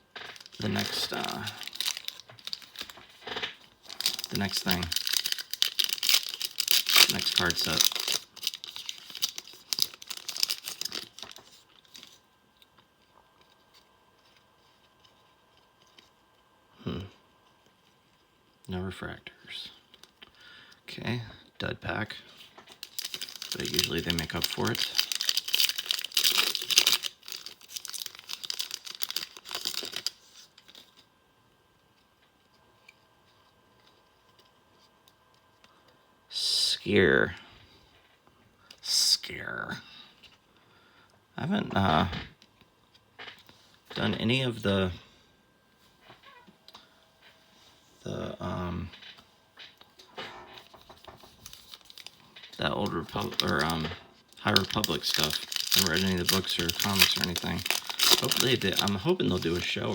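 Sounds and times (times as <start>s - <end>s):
foil wrapper tearing and crinkling: 0.2s - 12.2s, 22.7s - 30.9s, 51.3s - 53.8s, 54.4s - 59.9s.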